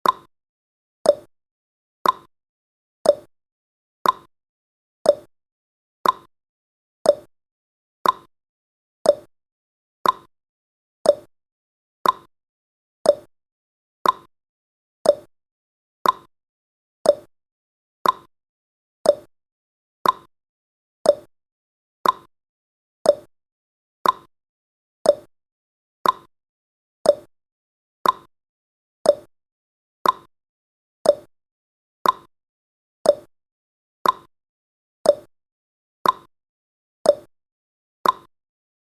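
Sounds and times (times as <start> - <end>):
timer ticking clicks: 0.0 - 0.3, 1.0 - 1.3, 2.0 - 2.3, 3.0 - 3.3, 4.0 - 4.3, 5.0 - 5.3, 6.0 - 6.3, 7.0 - 7.3, 8.0 - 8.3, 9.0 - 9.3, 10.0 - 10.3, 11.0 - 11.3, 12.0 - 12.3, 13.0 - 13.3, 14.0 - 14.3, 15.0 - 15.3, 16.0 - 16.3, 17.0 - 17.3, 18.0 - 18.3, 19.0 - 19.3, 20.0 - 20.3, 21.0 - 21.3, 22.0 - 22.3, 23.0 - 23.3, 24.0 - 24.3, 25.0 - 25.3, 26.0 - 26.3, 27.0 - 27.3, 28.0 - 28.3, 29.0 - 29.3, 30.0 - 30.3, 31.0 - 31.3, 32.0 - 32.3, 33.0 - 33.3, 34.0 - 34.3, 35.0 - 35.3, 36.0 - 36.3, 37.0 - 37.3, 38.0 - 38.3.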